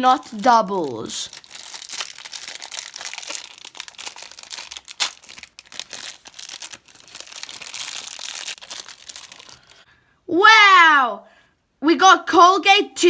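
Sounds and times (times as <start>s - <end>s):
wrapper crinkling: 0.0s - 9.8s
wrapper ripping: 0.0s - 9.8s.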